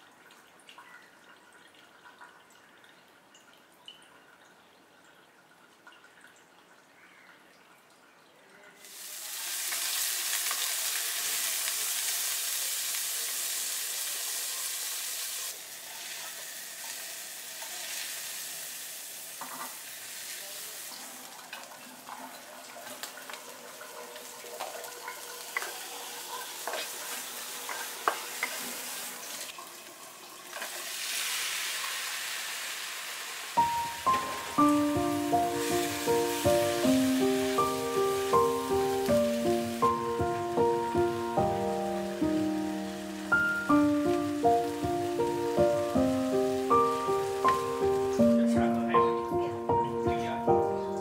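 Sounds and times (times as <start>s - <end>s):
shrimp sizzling in hot oil: 8.8s - 48.4s.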